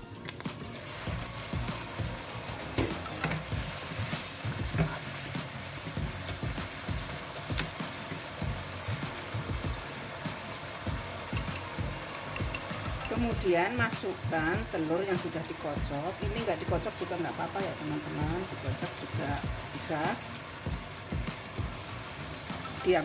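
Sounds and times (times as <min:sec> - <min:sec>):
food sizzling in a wok: 0:00.0 - 0:23.0
wooden spatula scraping: 0:02.7 - 0:05.2.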